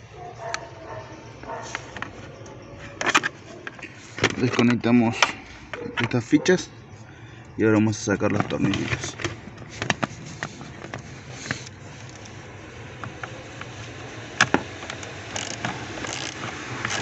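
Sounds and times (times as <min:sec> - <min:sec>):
hand tools clicking and knocking: 0:00.4 - 0:06.5, 0:14.4 - 0:17.0.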